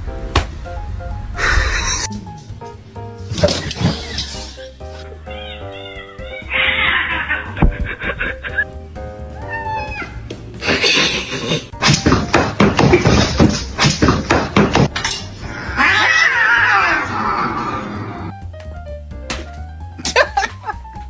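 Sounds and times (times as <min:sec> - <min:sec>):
music with steady beat: 0:02.1 - 0:03.4, 0:04.4 - 0:10.7, 0:18.3 - 0:21.0
cats yowling: 0:03.4 - 0:08.6, 0:09.4 - 0:11.5, 0:15.4 - 0:18.3.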